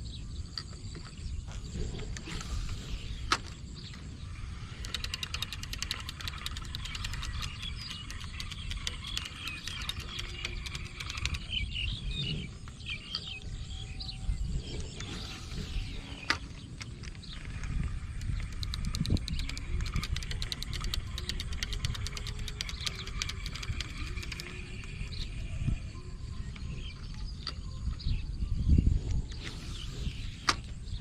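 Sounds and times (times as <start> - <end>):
birds chirping: 0.0 - 31.0
sharp clicks: 1.9 - 11.7, 14.7 - 25.5, 29.1 - 30.8
rapid ticking: 4.4 - 11.7, 17.4 - 25.4.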